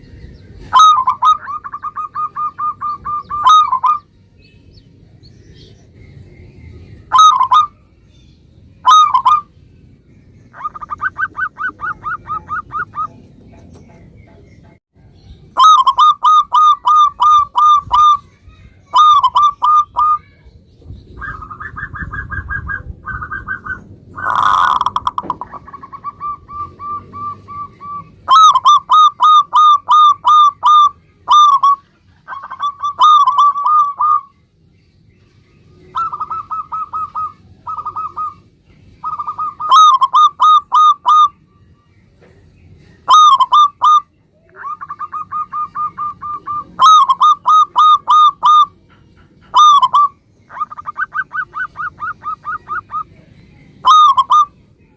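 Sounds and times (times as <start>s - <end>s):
doves cooing: 0.0s - 4.1s, 7.0s - 7.8s, 8.8s - 9.5s, 10.5s - 14.5s, 15.5s - 18.2s, 18.9s - 20.3s, 21.1s - 34.3s, 35.8s - 41.4s, 43.0s - 53.2s, 53.8s - 54.6s.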